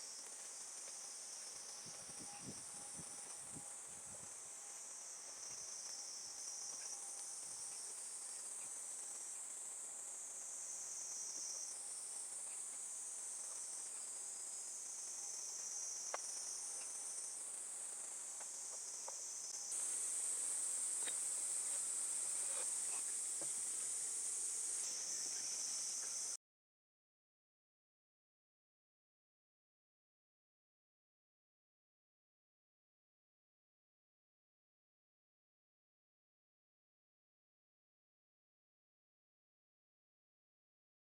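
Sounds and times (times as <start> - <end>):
faint ticks: 0.0 - 19.9, 20.8 - 23.9
insects singing: 0.0 - 26.4.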